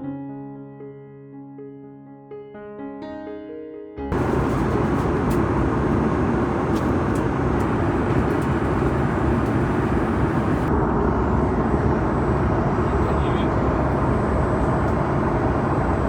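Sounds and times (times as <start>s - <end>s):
jet engine rush: 4.1s - 16.0s.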